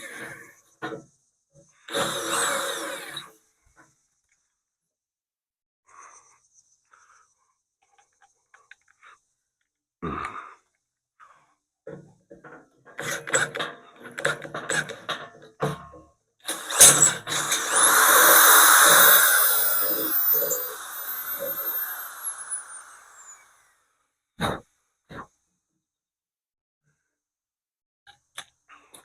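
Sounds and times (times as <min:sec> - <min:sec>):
electric drill boring into metal: 0:01.9 - 0:03.3, 0:16.5 - 0:23.6
handling knocks and clanks: 0:11.9 - 0:16.0.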